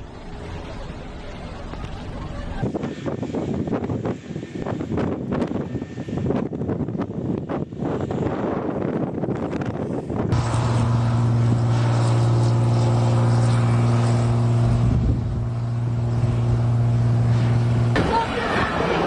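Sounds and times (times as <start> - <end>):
steady engine hum: 0.0 - 19.0
wind noise: 2.6 - 19.0.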